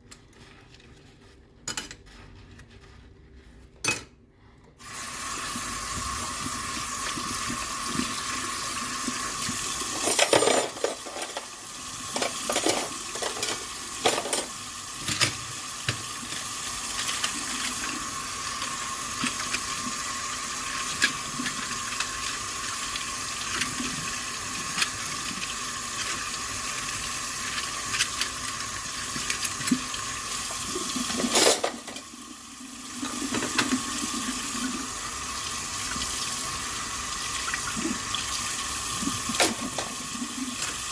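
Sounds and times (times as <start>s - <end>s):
tap water running into sink: 4.8s - 10.2s, 10.9s - 40.9s
dishes clinking: 31.1s - 32.0s.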